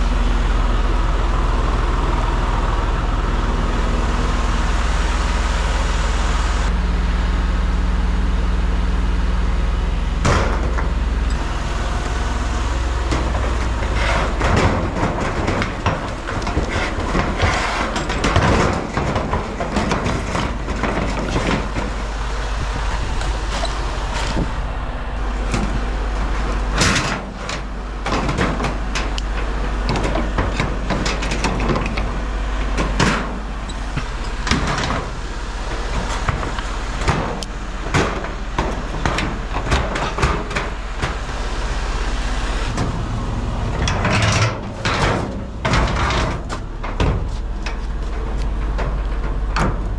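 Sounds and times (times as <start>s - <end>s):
diesel engine running: 0.0s - 49.9s
knocks clanks and rattles: 9.9s - 49.9s.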